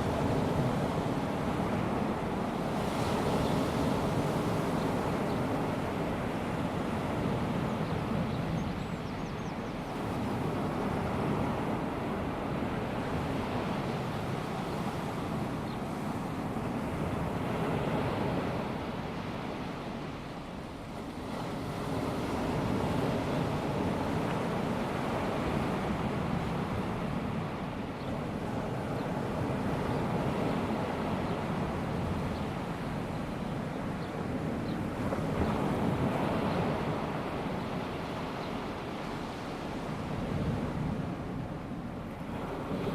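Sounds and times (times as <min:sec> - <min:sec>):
small waves washing onto beach: 0:09.8 - 0:42.9.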